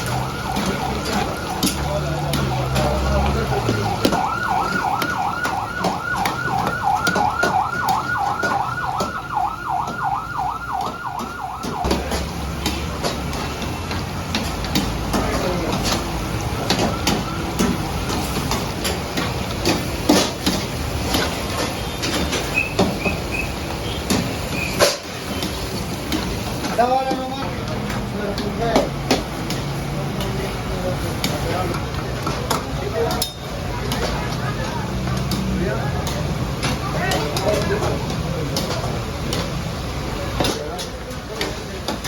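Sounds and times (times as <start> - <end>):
electronic siren wail: 0.0 - 12.3.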